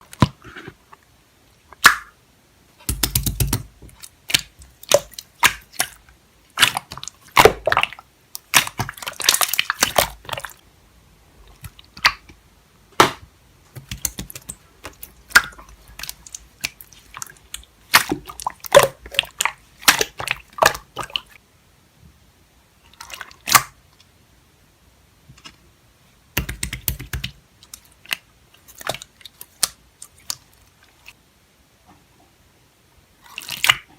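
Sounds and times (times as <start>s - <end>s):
slime squishing by hand: 2.8s - 10.6s, 13.0s - 21.4s, 26.4s - 31.2s, 33.2s - 33.9s.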